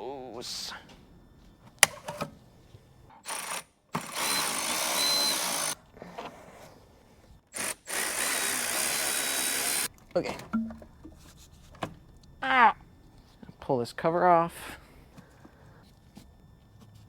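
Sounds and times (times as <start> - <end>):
cordless drill spinning: 3.2 - 5.8, 7.5 - 9.9.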